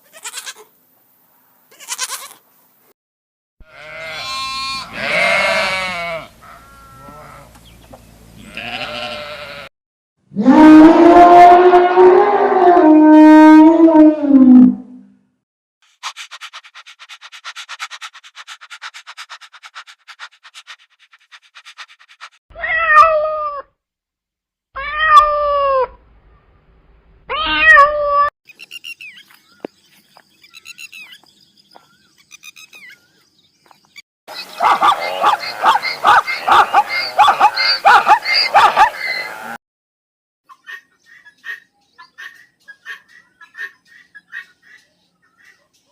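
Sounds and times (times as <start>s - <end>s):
cat meowing: 22.6s - 23.6s, 24.8s - 25.9s, 27.3s - 28.3s
busy run of calls: 34.3s - 39.4s.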